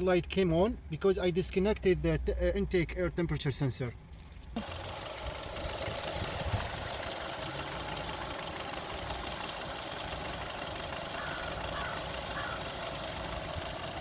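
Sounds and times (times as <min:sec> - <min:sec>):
car engine idling roughly: 0:04.6 - 0:14.0.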